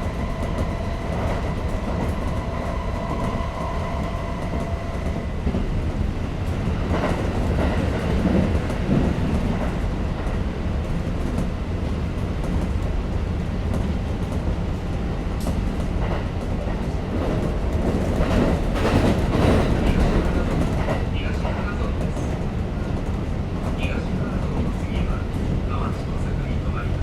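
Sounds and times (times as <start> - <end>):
train interior rumble: 0.0 - 27.0.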